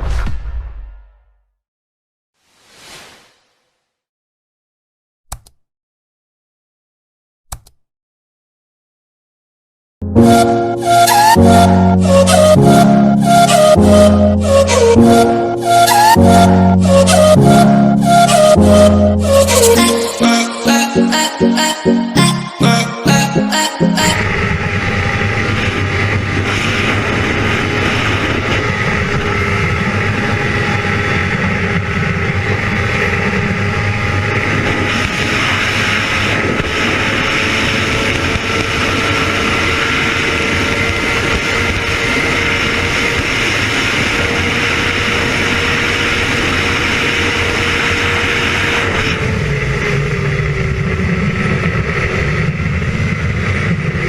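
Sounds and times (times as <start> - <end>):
motorcycle engine at high pitch: 24.2 - 54.0.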